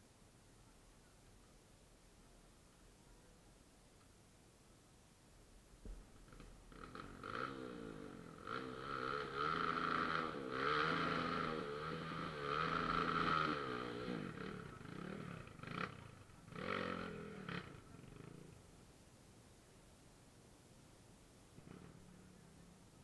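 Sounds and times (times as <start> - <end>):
motorcycle engine revving: 6.1 - 18.6, 21.6 - 22.6.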